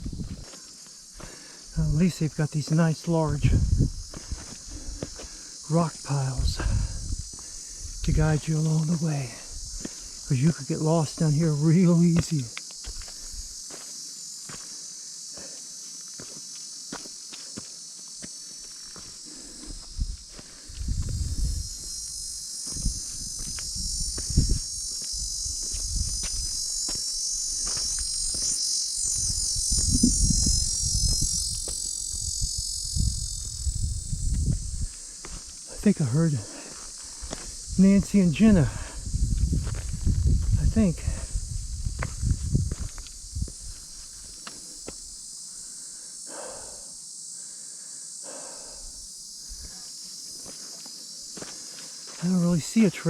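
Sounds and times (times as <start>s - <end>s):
wind on microphone: 0.0s - 0.5s, 3.3s - 5.2s, 6.3s - 8.4s, 19.8s - 26.7s, 29.0s - 35.1s, 37.5s - 44.0s
grasshoppers and crickets buzzing: 0.0s - 53.0s
insects trilling: 0.0s - 53.0s
footsteps thumping: 22.6s - 32.0s, 41.8s - 45.0s.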